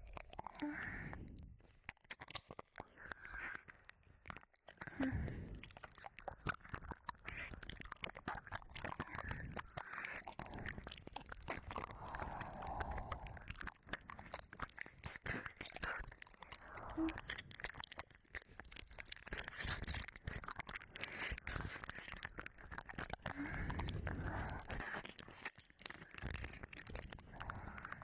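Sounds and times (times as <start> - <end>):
soft breaths: 0.0 - 1.8, 2.8 - 5.9, 8.9 - 17.4, 23.2 - 28.0
wet mouth licking sounds: 0.0 - 28.0.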